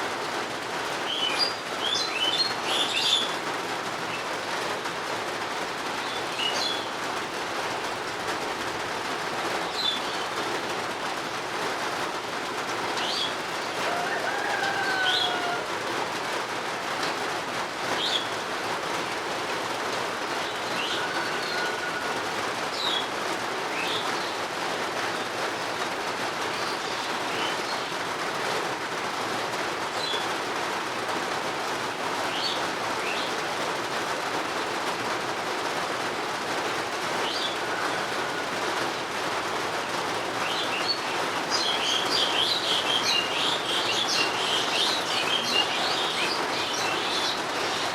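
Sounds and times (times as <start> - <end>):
steady rainfall: 0.0 - 47.9
birds chirping: 13.0 - 15.7, 40.4 - 47.9.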